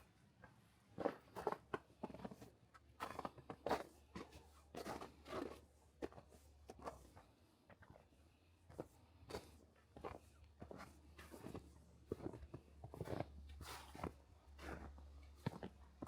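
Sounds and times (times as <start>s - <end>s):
crunching footsteps: 9.3s - 15.8s.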